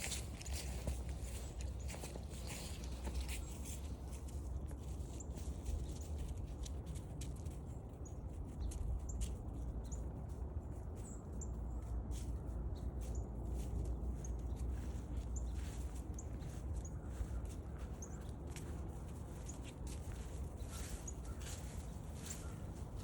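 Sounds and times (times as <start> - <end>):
footsteps on forest trail: 0.0 - 7.0, 11.8 - 23.0.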